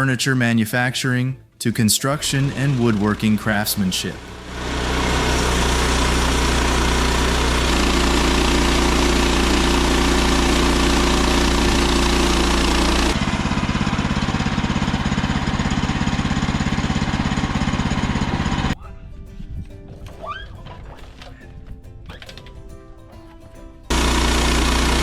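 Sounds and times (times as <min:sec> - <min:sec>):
log-sawing machinery running: 0:02.2 - 0:18.8, 0:23.9 - 0:25.0
rapid pulsing engine: 0:02.2 - 0:18.8, 0:23.9 - 0:25.0.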